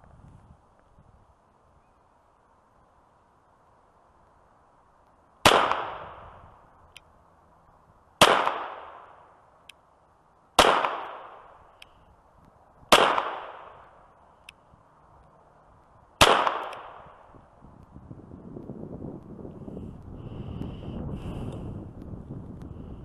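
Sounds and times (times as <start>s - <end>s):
pistol shots with echo: 5.4s - 6.2s, 8.2s - 9.2s, 10.6s - 11.5s, 12.9s - 13.9s, 16.2s - 17.2s
faint tick: 9.6s - 9.8s, 11.8s - 12.6s, 14.4s - 16.0s, 18.6s - 20.7s, 21.5s - 22.8s.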